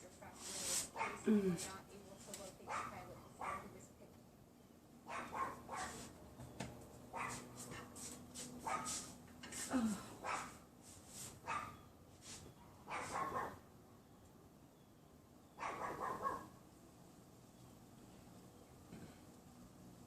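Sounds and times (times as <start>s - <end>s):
small dogs yapping: 1.0s - 1.3s, 5.1s - 6.1s, 7.1s - 7.5s, 8.6s - 9.0s, 11.4s - 11.8s, 12.9s - 13.6s, 15.6s - 16.5s.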